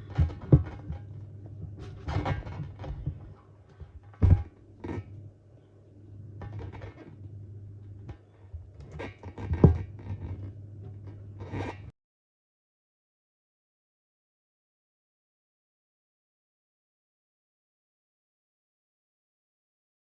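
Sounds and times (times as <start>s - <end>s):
scraping noises: 0.0s - 5.2s, 8.0s - 11.9s
thumps: 0.0s - 5.2s, 6.4s - 11.9s
steady low hum: 0.0s - 11.9s.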